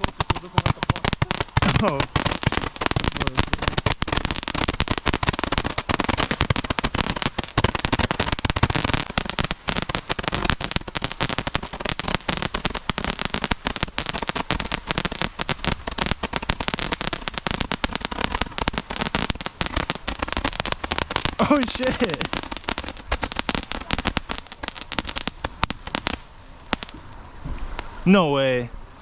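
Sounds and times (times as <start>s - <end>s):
fireworks popping and crackling: 0.0s - 27.0s.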